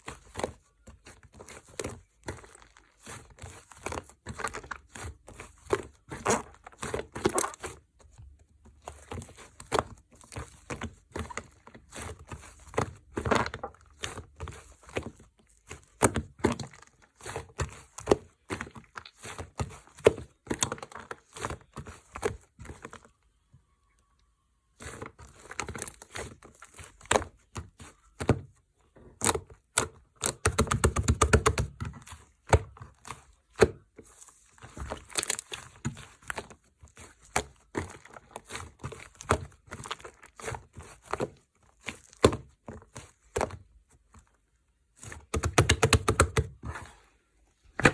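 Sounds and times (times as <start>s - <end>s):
foam slime squished by hand: 0.1s - 22.7s, 29.2s - 47.9s
slime popping and crackling: 6.1s - 7.7s, 34.9s - 36.0s.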